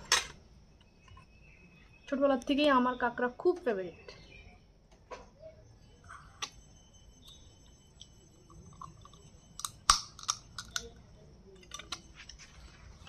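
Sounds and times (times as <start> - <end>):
sharp shell cracks and clicks: 8.8 - 11.0.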